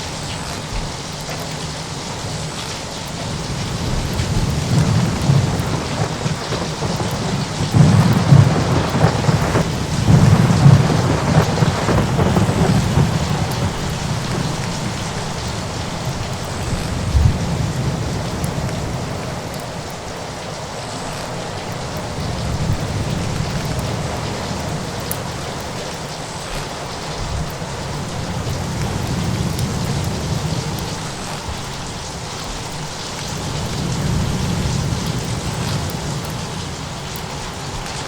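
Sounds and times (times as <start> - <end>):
steady rain: 0.0 - 38.0
thunder rolling: 3.2 - 20.3, 27.2 - 32.0.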